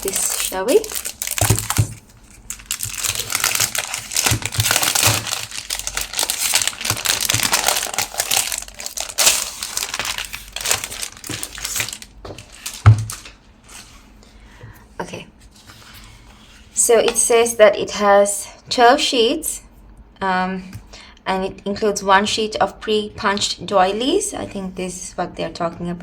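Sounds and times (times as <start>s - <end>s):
packaging crinkling and rustling: 0.0s - 13.9s.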